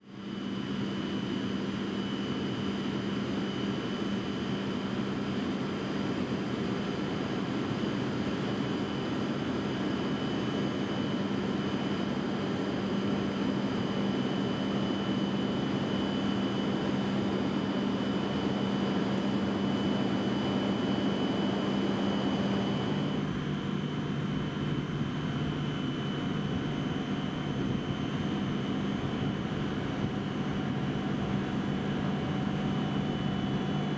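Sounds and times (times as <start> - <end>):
low equipment hum: 21.2 - 33.9.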